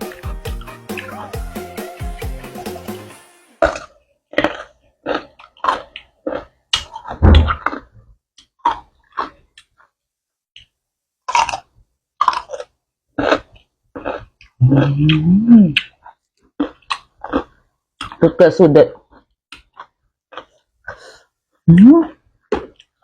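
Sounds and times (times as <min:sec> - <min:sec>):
crunchy chewing: 0:03.6 - 0:10.0, 0:11.3 - 0:18.2, 0:19.0 - 0:21.2, 0:22.0 - 0:23.0.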